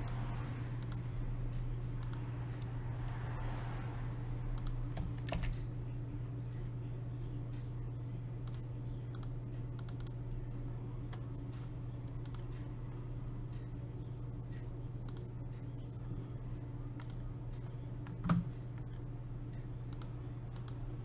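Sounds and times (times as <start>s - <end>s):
steady low hum: 0.0s - 21.0s
keyboard keys clicking: 4.6s - 5.7s, 8.4s - 10.2s, 17.0s - 17.2s.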